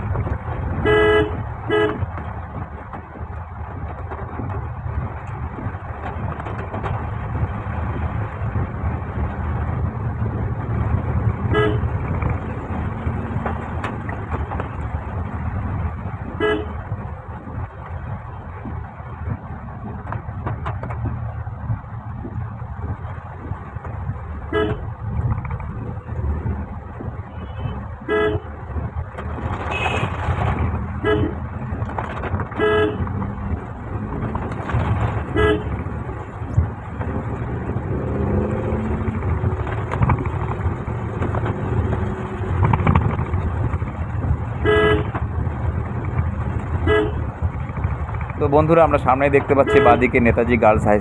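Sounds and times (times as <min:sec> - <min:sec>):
car driving on wet road: 0:00.0 - 0:51.0
short vehicle horn toots: 0:29.7 - 0:30.2.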